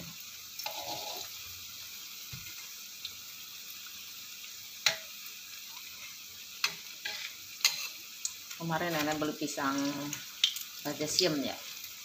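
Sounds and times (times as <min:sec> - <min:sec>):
fritters sizzling in hot oil: 0:00.0 - 0:12.0.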